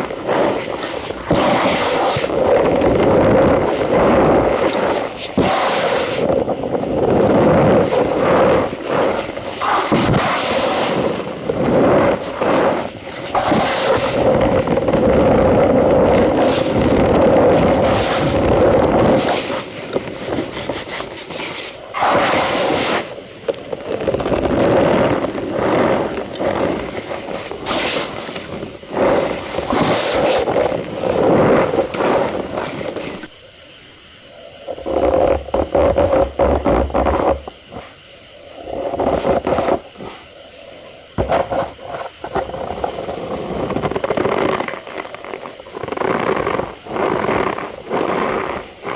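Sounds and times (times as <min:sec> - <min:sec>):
powder crunching and squeaking: 0:41.3 - 0:48.9.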